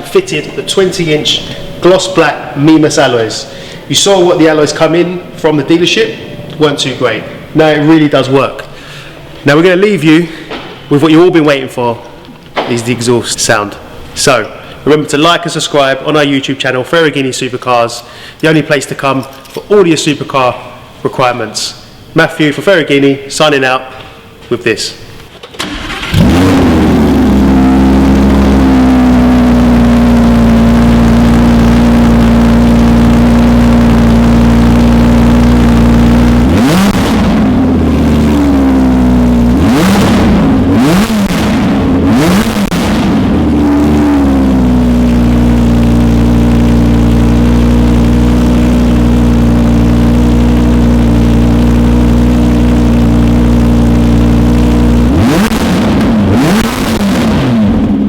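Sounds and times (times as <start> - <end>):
sports car engine idling and revving: 25.7 - 58.0.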